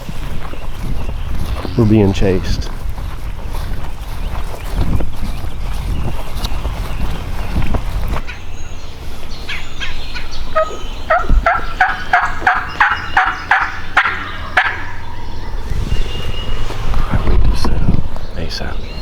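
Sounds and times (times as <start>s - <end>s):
footsteps: 0.0s - 14.3s, 15.6s - 18.3s
turkey yelping: 9.5s - 15.8s.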